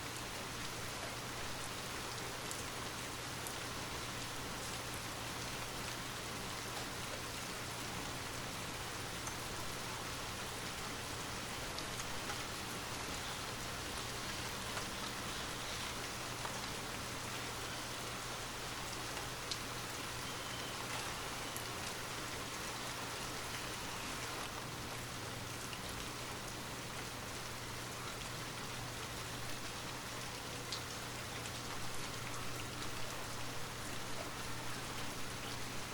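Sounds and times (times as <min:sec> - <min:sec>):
steady rain hiss: 0:00.0 - 0:35.9
raindrop ticks: 0:14.3 - 0:16.7, 0:19.1 - 0:19.7.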